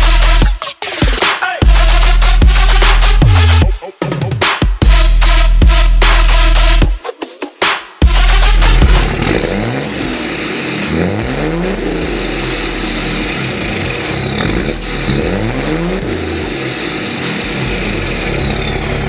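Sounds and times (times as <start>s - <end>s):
diesel engine revving: 8.1s - 19.0s
turbo whistle: 14.0s - 16.3s, 18.1s - 19.0s.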